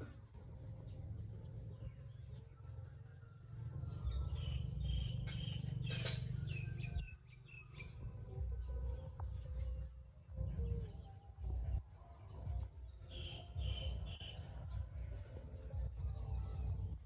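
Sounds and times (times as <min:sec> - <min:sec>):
small birds chirping: 0:00.0 - 0:17.0
steady low rumble: 0:03.5 - 0:17.0.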